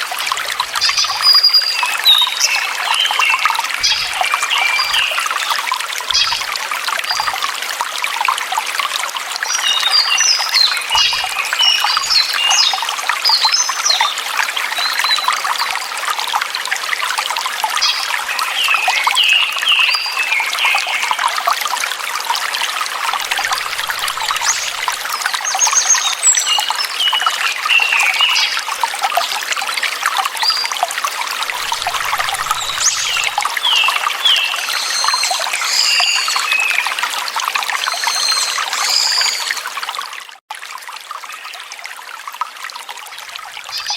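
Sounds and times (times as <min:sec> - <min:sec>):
water trickling: 0:00.0 - 0:43.9
songbirds chirping: 0:31.6 - 0:36.8.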